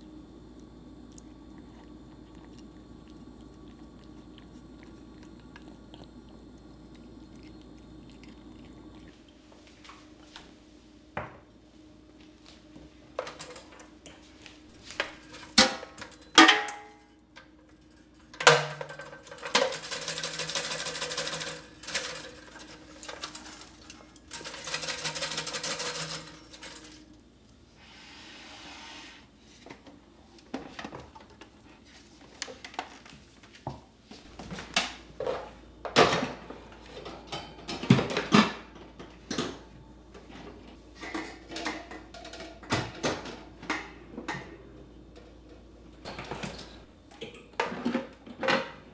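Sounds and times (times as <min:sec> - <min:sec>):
kitchen items clattering: 0:13.0 - 0:27.4, 0:34.3 - 0:48.9.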